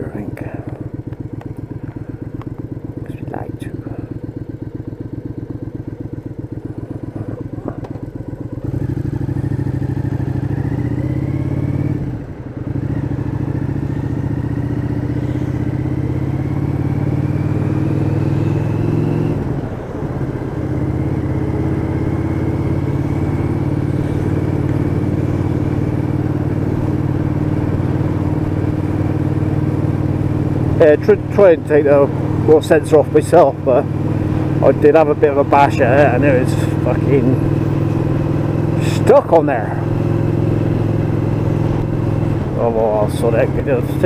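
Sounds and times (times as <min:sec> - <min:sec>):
motorcycle engine: 0:00.0 - 0:44.0.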